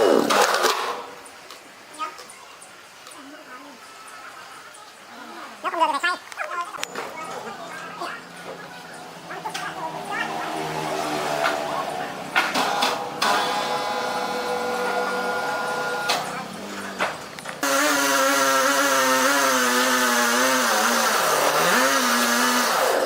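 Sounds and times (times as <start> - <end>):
power saw cutting wood: 0.0 - 1.2, 8.4 - 23.0.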